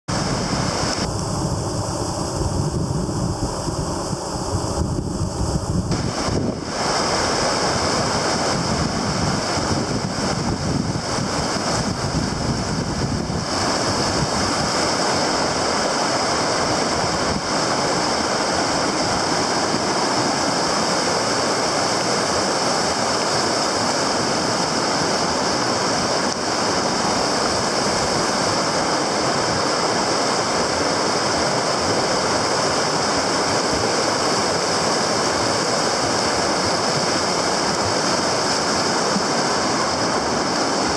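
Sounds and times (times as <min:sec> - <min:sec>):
wind buffeting microphone: 0:00.1 - 0:20.4
river water rushing: 0:00.1 - 0:40.9.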